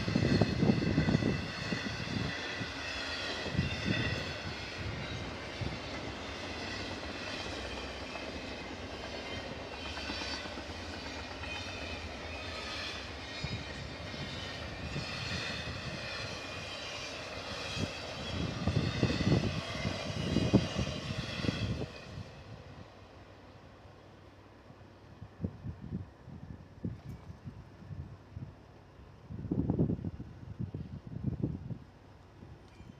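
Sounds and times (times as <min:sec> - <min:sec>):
train wheels rolling on rail: 0:00.0 - 0:25.4.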